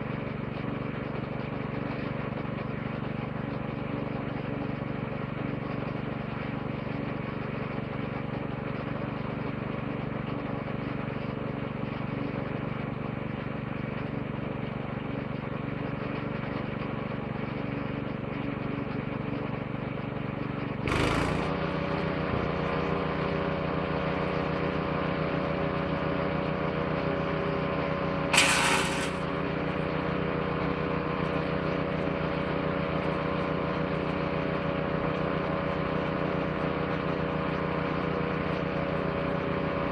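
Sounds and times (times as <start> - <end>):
woodchipper engine running: 19.5 - 39.9
loud bursts of noise: 20.8 - 23.0, 28.3 - 29.4.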